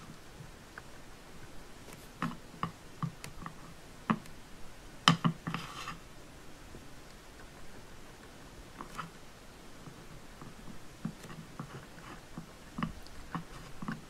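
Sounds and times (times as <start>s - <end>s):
scraping rustle: 5.4s - 6.1s, 6.8s - 14.0s.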